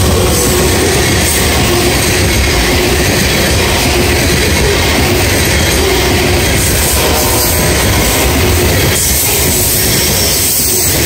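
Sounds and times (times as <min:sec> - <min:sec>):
freight train wheels rumbling on rails: 0:00.0 - 0:11.0.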